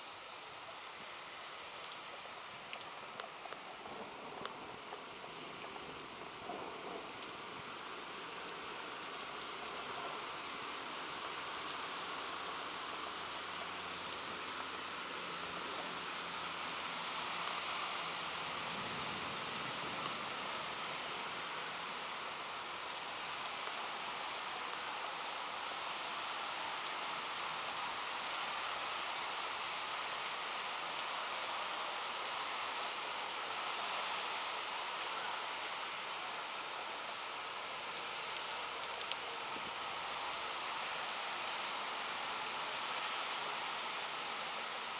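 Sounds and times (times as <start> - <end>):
steady rain: 0.0 - 44.9
sharp drip ticks: 1.8 - 4.6, 17.0 - 18.1, 38.3 - 39.2.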